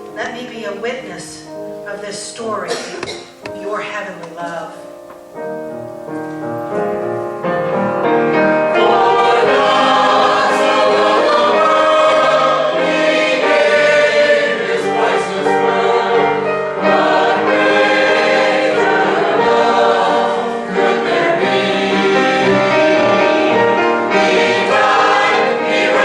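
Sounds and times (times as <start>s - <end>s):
choir singing: 6.7s - 26.0s.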